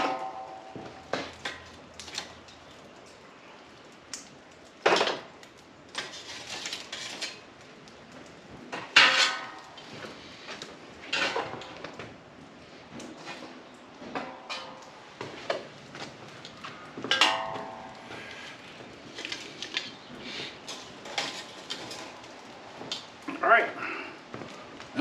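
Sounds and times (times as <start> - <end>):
metal clanks and clatters: 0.0 - 2.6, 4.8 - 7.5, 8.7 - 12.1, 13.0 - 20.0.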